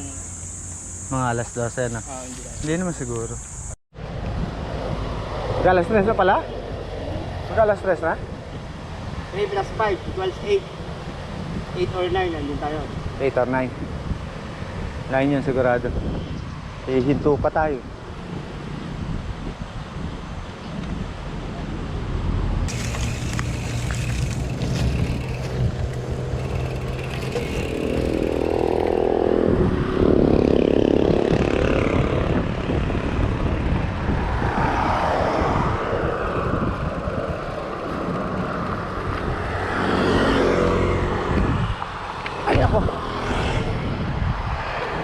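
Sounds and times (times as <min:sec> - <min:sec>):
vehicles passing: 0:00.0 - 0:45.0.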